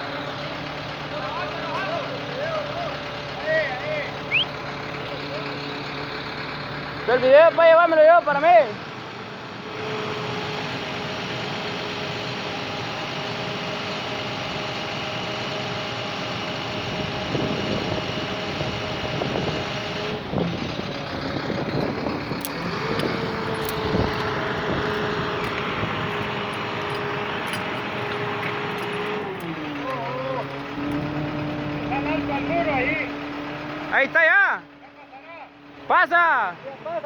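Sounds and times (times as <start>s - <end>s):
vehicle engine whining: 0.0s - 37.0s
scattered knocks and clicks: 21.8s - 29.8s.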